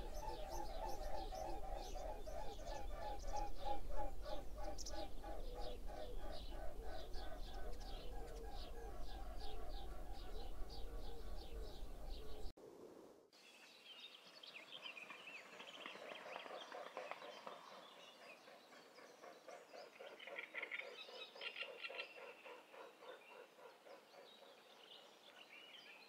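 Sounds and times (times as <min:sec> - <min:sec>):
small birds chirping: 0:00.0 - 0:12.5.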